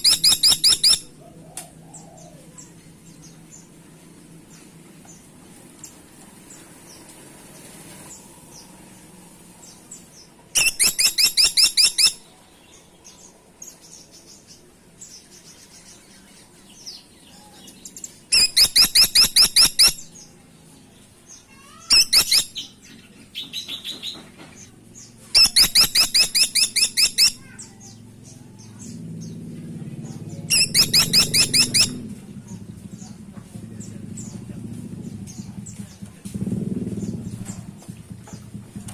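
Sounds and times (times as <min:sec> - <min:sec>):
woodpecker calling in sharp bursts: 0:00.0 - 0:01.1, 0:10.6 - 0:12.2, 0:18.3 - 0:20.1, 0:21.6 - 0:22.7, 0:25.4 - 0:27.7, 0:30.5 - 0:32.0
faint bird chirps: 0:10.6 - 0:14.6, 0:15.2 - 0:20.3, 0:21.4 - 0:29.4, 0:30.1 - 0:33.2.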